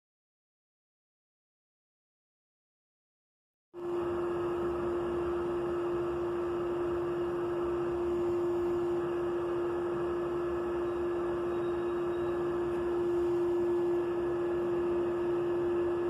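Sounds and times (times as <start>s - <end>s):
machine hum: 3.8s - 16.0s.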